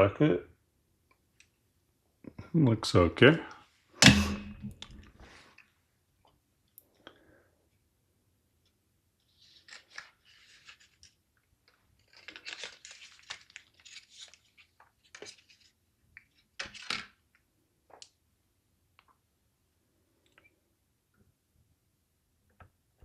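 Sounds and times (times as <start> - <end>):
plastic packaging crackling and tearing: 9.4 - 15.7.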